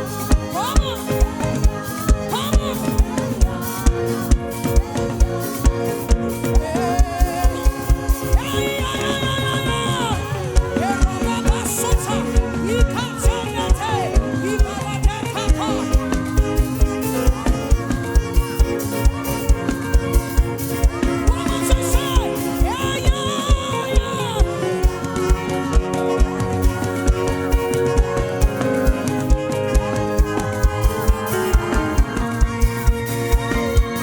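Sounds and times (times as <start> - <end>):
gospel worship band music: 0.0 - 34.0.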